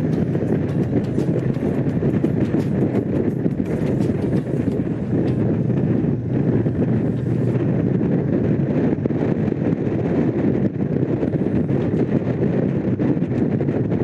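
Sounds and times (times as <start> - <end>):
motorcycle engine running: 0.0 - 9.4
wind noise on microphone: 0.0 - 14.0.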